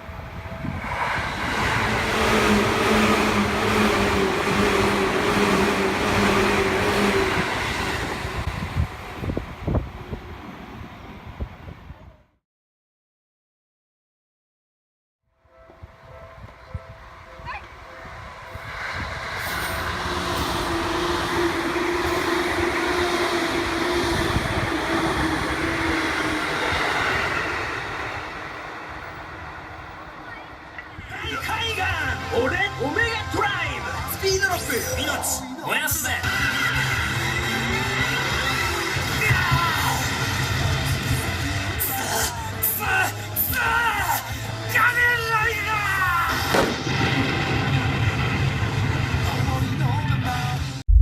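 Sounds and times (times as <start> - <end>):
train wheels rumbling on rails: 0.0 - 11.9, 17.6 - 35.2, 35.9 - 42.7.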